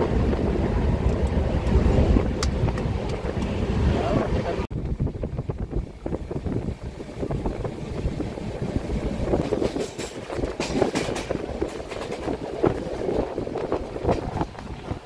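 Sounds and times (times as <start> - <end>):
train running noise: 0.0 - 15.0
wheels clicking over rails: 7.2 - 15.0.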